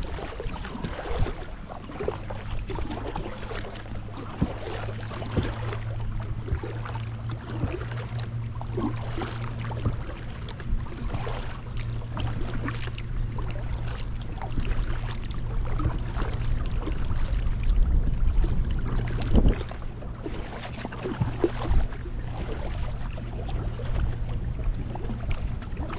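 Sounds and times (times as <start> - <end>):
paddle splashing water: 0.0 - 25.9
steady low hum: 0.0 - 25.9.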